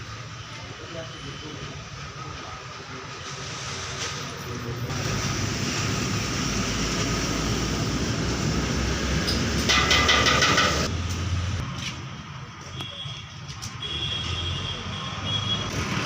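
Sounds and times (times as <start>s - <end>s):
vehicle motor rumble: 4.5s - 12.6s.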